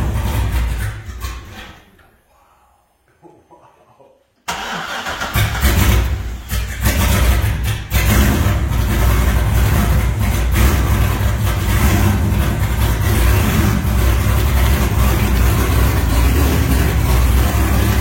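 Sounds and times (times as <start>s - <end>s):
loud car engine running: 5.5s - 18.0s.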